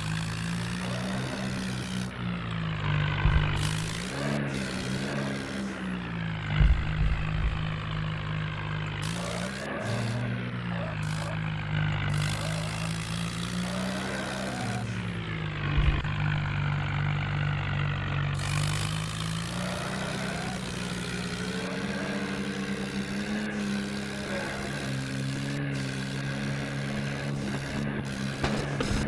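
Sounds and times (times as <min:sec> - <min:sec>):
tractor engine running: 0:00.0 - 0:29.0
loud thump: 0:03.2 - 0:04.0, 0:06.5 - 0:08.3, 0:15.7 - 0:16.6.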